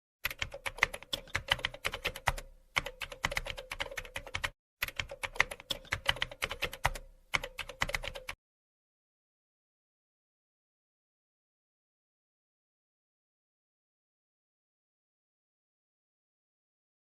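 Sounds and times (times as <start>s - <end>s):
keyboard typing clicks: 0.2s - 8.4s.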